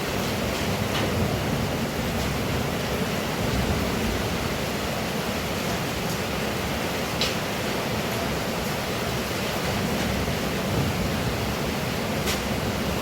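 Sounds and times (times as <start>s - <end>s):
faint ticks of raindrops: 0.0s - 1.4s, 5.6s - 10.2s, 12.0s - 13.0s
heavy rain pouring: 0.0s - 13.0s.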